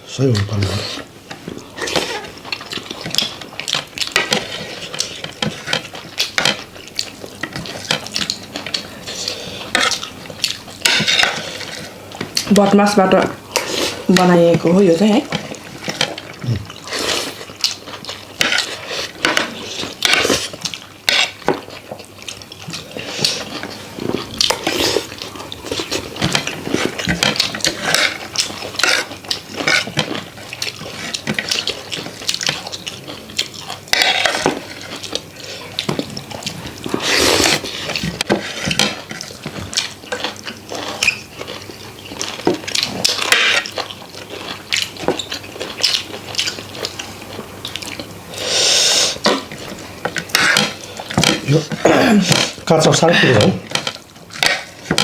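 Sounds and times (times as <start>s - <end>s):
wet slurping noises: 36.9s - 38.0s, 48.3s - 49.5s.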